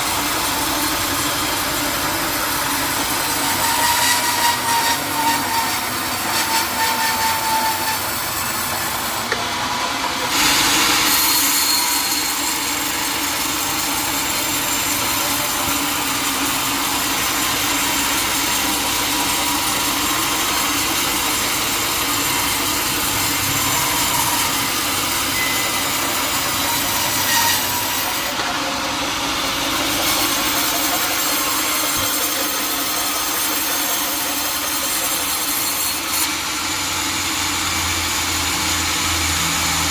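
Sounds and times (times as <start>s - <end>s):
saw cutting through log: 0.0s - 39.9s.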